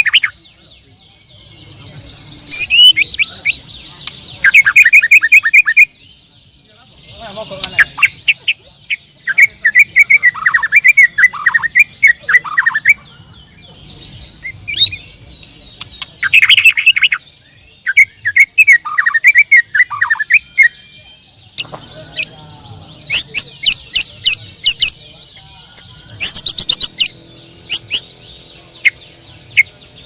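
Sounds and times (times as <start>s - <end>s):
songbird chirping: 0.0s - 30.0s.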